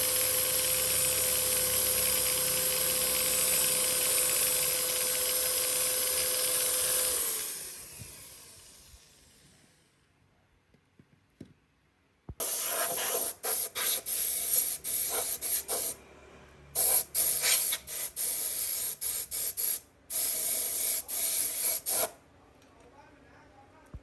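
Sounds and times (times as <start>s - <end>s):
compressed air nozzle hissing: 12.4s - 16.0s, 16.8s - 22.2s.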